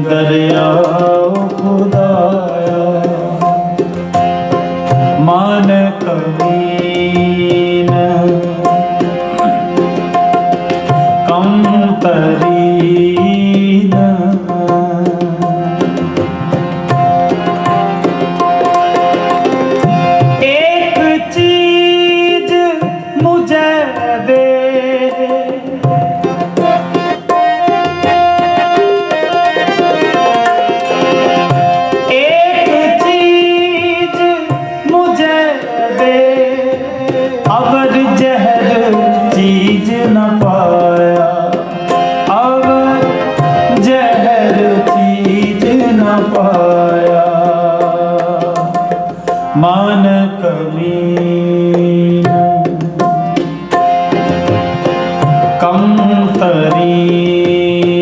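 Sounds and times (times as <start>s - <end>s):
person singing gliding vocal line: 0.0s - 4.0s, 32.1s - 41.5s
harmonium: 0.0s - 58.0s
tabla: 0.0s - 58.0s.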